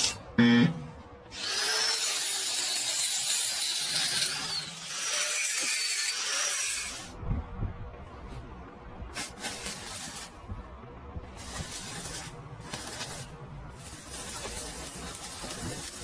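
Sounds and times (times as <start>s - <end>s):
welding arc buzzing: 9.2s - 10.4s, 11.4s - 16.0s.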